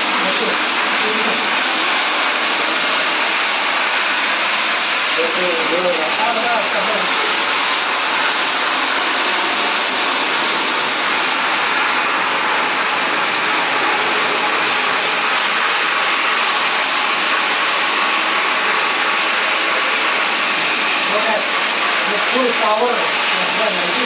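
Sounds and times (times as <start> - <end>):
carpet shampooer motor running: 0.0 - 24.0.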